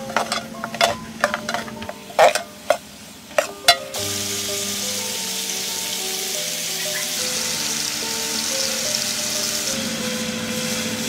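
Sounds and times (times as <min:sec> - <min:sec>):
meat sizzling in a pot: 0:00.0 - 0:11.0
background music: 0:03.4 - 0:11.0.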